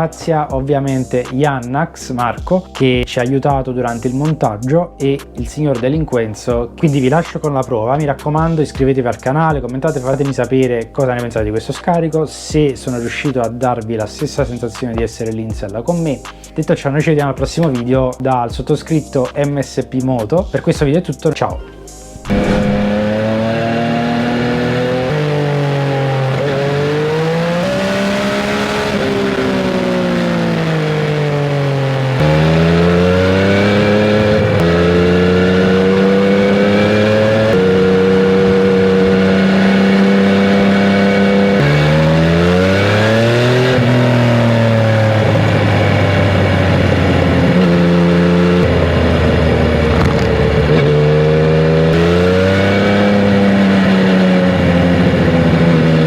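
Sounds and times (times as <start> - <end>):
motorcycle engine revving: 22.1 - 56.0.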